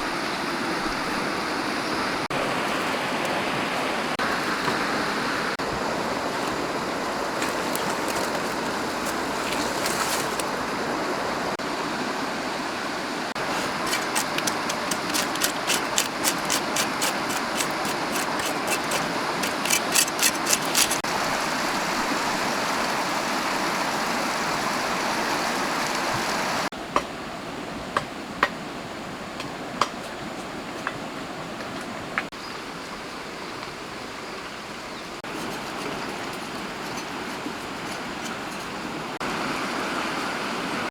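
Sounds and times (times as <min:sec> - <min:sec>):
flowing water rushing: 0:00.0 - 0:26.7, 0:28.5 - 0:40.9.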